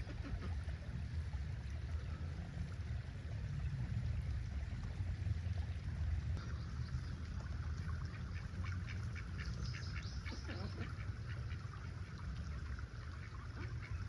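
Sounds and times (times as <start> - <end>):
ducks quacking: 8.1 - 12.1.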